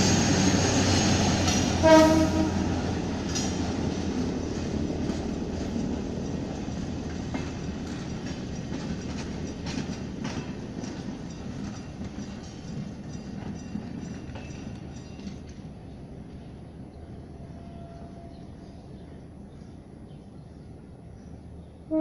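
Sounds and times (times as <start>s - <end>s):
train rumbling: 0.0s - 22.0s
wheels clicking over rail joints: 3.0s - 15.9s.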